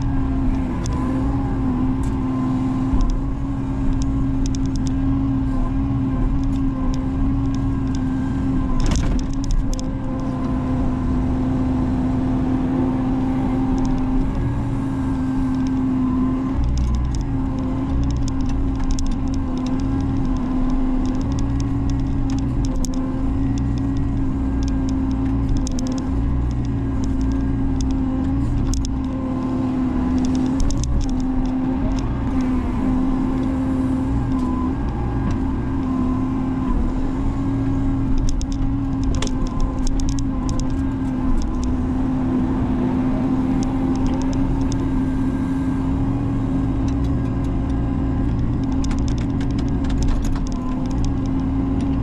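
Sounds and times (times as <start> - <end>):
excavator diesel engine running: 0.0 - 52.0
light clicks and knocks: 46.8 - 52.0.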